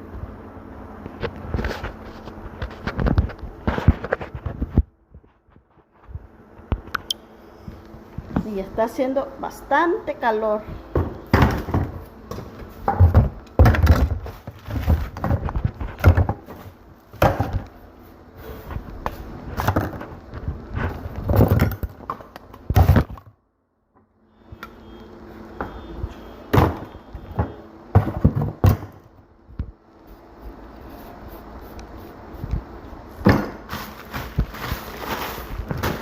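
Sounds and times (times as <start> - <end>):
faint steady hum: 0.0 - 36.0
objects knocking and clattering: 10.9 - 17.8, 19.6 - 23.4, 26.5 - 29.1.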